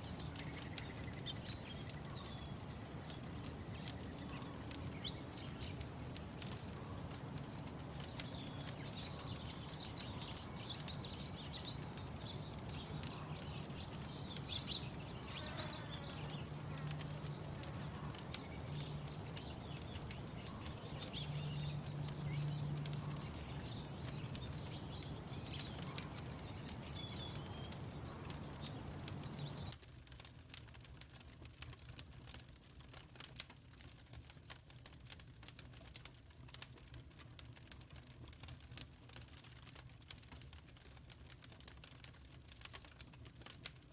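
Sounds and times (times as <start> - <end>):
songbirds chirping and singing: 0.0 - 29.8
crackling clicks: 0.0 - 43.8.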